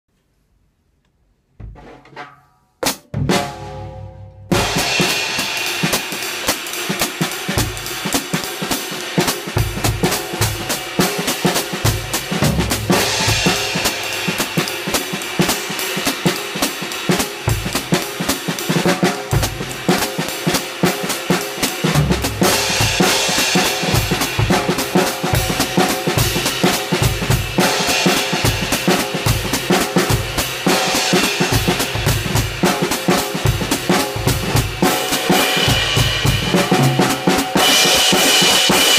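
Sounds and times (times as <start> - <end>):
snare drum: 2.8 - 38.9
bass drum: 3.0 - 5.3, 11.7 - 14.8, 21.9 - 27.6.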